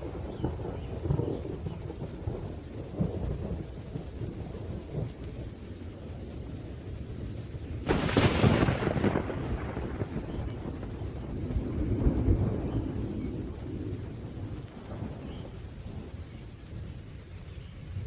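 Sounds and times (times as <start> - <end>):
rolling thunder: 0.0 - 17.2
rain: 0.0 - 18.0
sharp thunderclap: 7.8 - 15.5.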